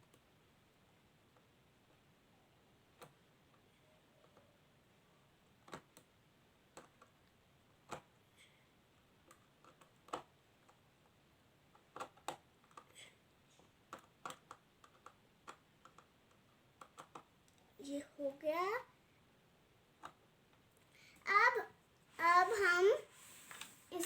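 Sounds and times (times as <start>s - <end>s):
plastic clicks and taps: 5.6s - 6.1s, 9.2s - 10.8s, 11.7s - 13.0s, 13.9s - 17.6s.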